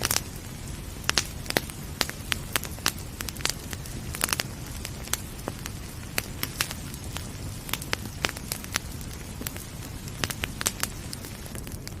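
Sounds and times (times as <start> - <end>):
fire crackling and popping: 0.0 - 12.0
fire low rumble: 0.0 - 12.0.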